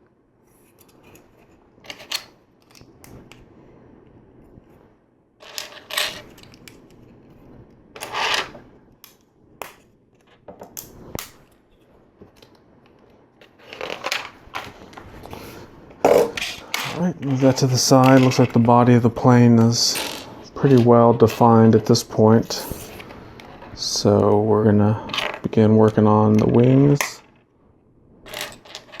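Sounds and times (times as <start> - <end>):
plastic pieces rattling: 13.4 - 15.0.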